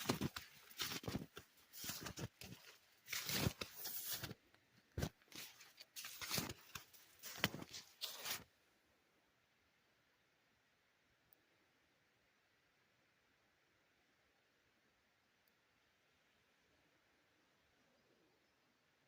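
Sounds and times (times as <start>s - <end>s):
crunching and scuffing: 0.0s - 8.5s.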